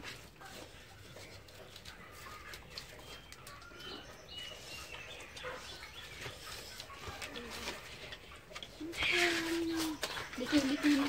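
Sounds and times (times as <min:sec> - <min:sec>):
faint high bird chirps: 0:02.1 - 0:07.8.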